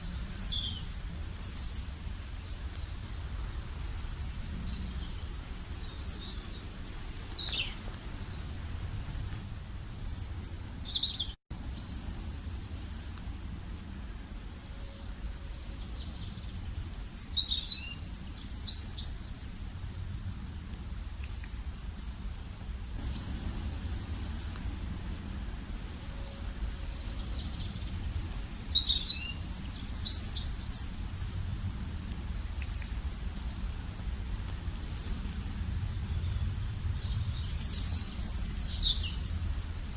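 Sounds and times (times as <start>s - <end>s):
small birds chirping: 0.0s - 19.7s, 21.1s - 31.2s, 32.0s - 39.8s
steady low rumble: 11.5s - 18.6s, 19.5s - 39.9s.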